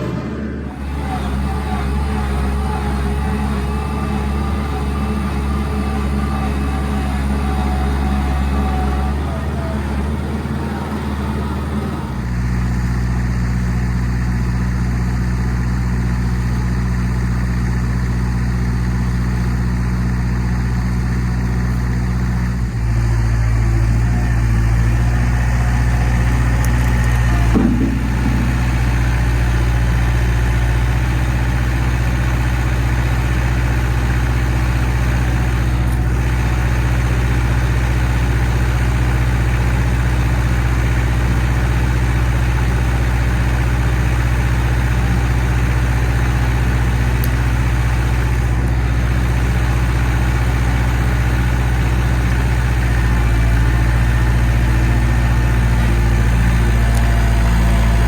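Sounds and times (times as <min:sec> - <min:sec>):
engine idling: 0:00.0 - 0:58.0
short bump: 0:26.7 - 0:30.2.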